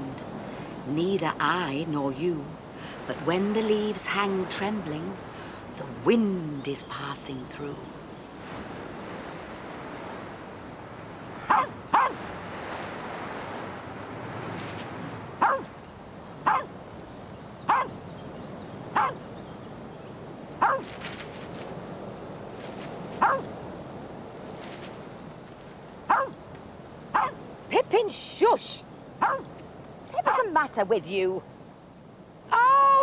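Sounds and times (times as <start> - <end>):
dog barking: 11.4 - 12.2, 15.4 - 15.7, 16.4 - 16.7, 17.7 - 17.9, 19.0 - 19.2, 20.6 - 20.9, 23.2 - 23.5, 26.1 - 26.4, 27.1 - 27.4, 29.2 - 29.5, 30.2 - 30.5.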